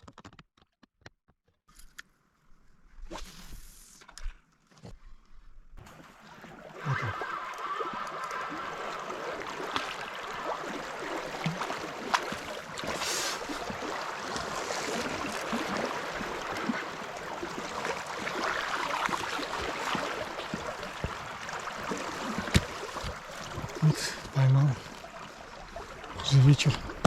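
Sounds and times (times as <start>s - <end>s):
river water rushing: 5.9s - 27.0s.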